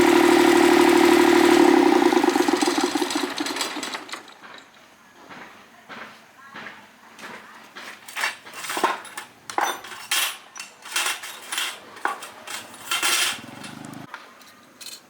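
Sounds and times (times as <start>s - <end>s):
low mechanical hum: 0.0s - 3.0s
metal tools clinking and scraping: 4.1s - 4.9s, 8.0s - 15.0s.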